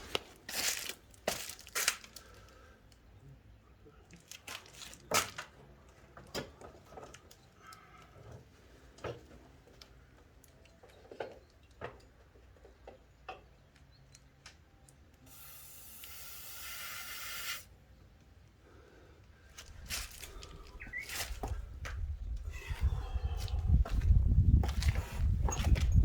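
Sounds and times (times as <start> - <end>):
aerosol spray can hissing: 15.3 - 17.7.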